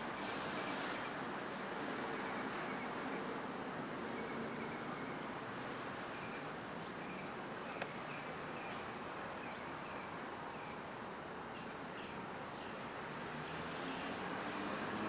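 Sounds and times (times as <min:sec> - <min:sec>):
background hiss: 0:00.0 - 0:15.0
birds chirping: 0:04.1 - 0:13.4.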